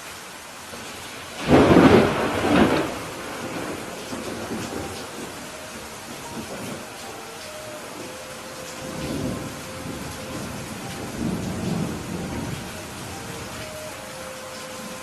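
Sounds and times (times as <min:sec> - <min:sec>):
steady rain: 0:00.0 - 0:15.0
thunder rumbling: 0:00.8 - 0:14.2.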